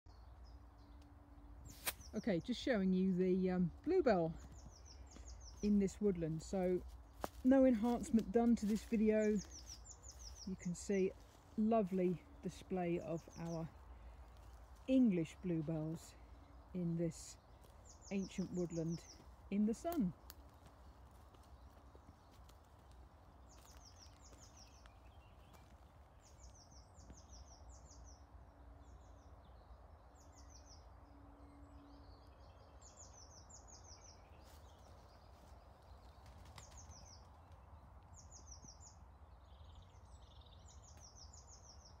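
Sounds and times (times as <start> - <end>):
small bird singing: 0.1 - 42.0.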